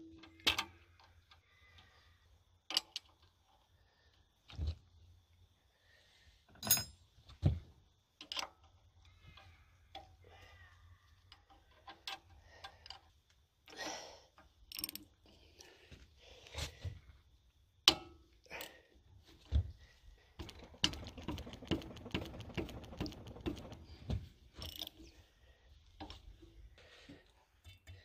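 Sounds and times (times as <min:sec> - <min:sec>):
metal tools clinking: 0:06.6 - 0:07.0
ratchet clicking: 0:14.7 - 0:15.1, 0:20.4 - 0:23.9, 0:24.6 - 0:25.0.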